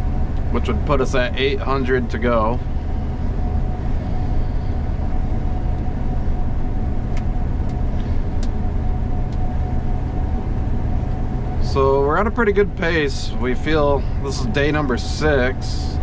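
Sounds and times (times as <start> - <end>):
combine harvester drone: 0.0 - 16.0.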